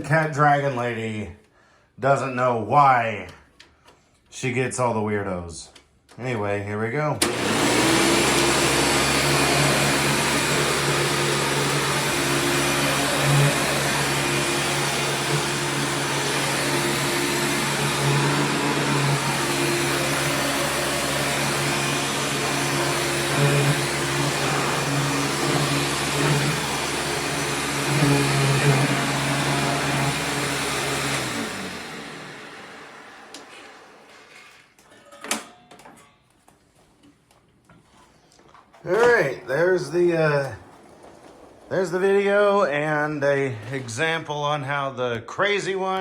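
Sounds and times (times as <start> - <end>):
vacuum cleaner motor running: 7.2 - 34.4, 38.9 - 44.0.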